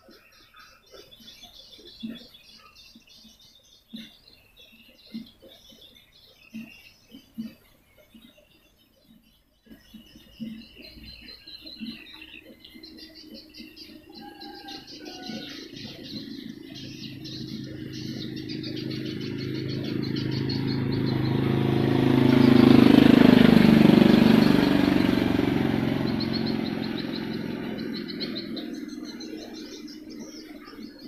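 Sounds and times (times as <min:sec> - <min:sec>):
swiftlets chirping trills: 0:10.2 - 0:31.0
vehicle passing by: 0:14.2 - 0:31.0.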